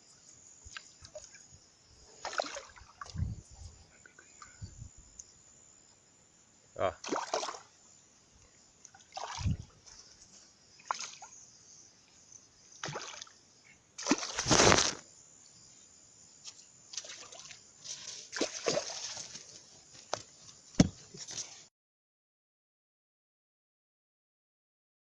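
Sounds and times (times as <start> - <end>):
water splashing and sloshing: 2.1 - 3.4, 7.0 - 7.7, 8.9 - 10.1, 10.8 - 11.3, 12.8 - 13.4, 14.0 - 15.0, 16.9 - 20.2.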